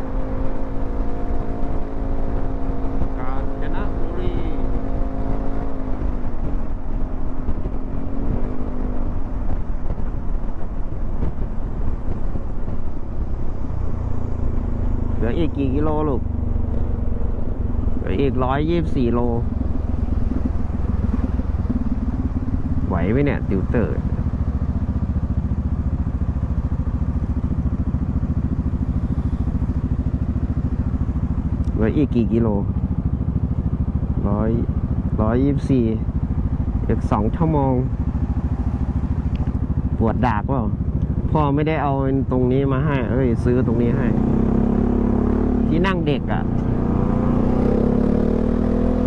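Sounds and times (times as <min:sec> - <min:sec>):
road noise: 0:00.0 - 0:49.0
scooter engine hum: 0:00.0 - 0:49.0
wind buffeting: 0:16.2 - 0:48.0.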